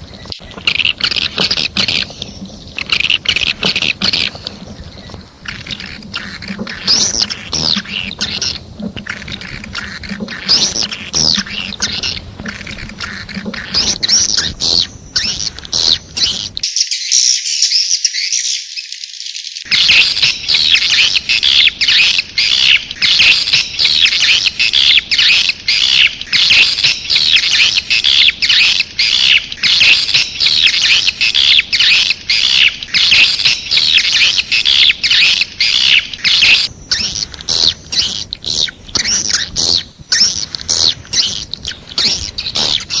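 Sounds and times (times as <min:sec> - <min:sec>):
swiftlet chirping and twittering: 0:00.0 - 0:43.0.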